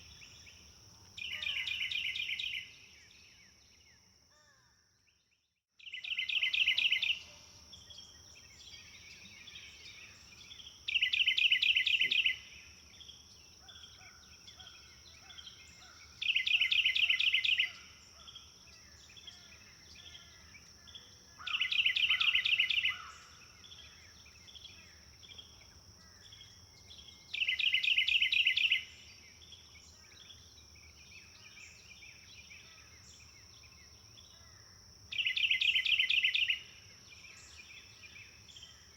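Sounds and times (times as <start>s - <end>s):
songbird trilling: 1.2s - 2.7s, 5.8s - 7.3s, 8.7s - 12.5s, 13.6s - 18.3s, 19.0s - 25.4s, 26.4s - 29.0s, 35.1s - 36.7s
soft bird chirps: 5.1s - 38.9s.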